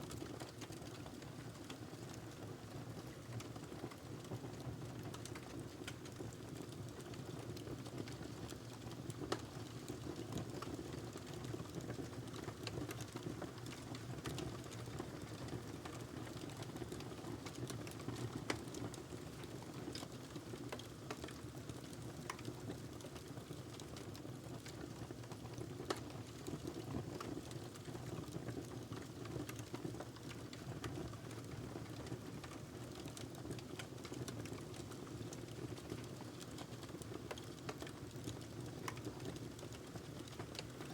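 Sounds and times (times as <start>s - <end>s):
fire crackling and snapping: 11.7s - 23.8s, 32.2s - 40.9s.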